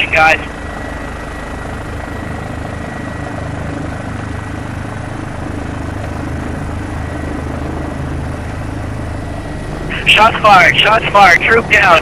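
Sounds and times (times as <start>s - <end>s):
helicopter rotor and engine: 0.0s - 12.0s.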